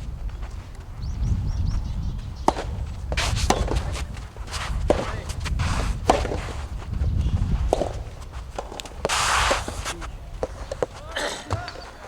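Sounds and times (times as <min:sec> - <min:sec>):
footsteps on tennis court: 0:00.0 - 0:12.0
brief hiss: 0:09.1 - 0:10.0.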